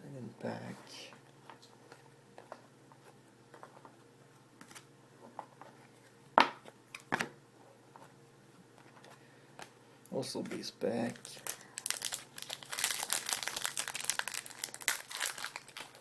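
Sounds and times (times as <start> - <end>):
trading cards rustling: 10.4 - 16.0.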